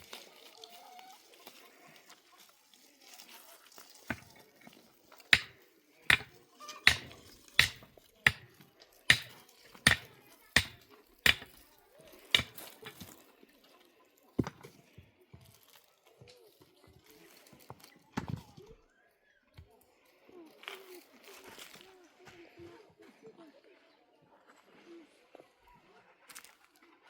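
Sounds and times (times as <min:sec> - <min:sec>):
sharp chopping strikes: 0:05.4 - 0:06.3, 0:06.9 - 0:08.5, 0:09.1 - 0:11.6, 0:12.4 - 0:13.0.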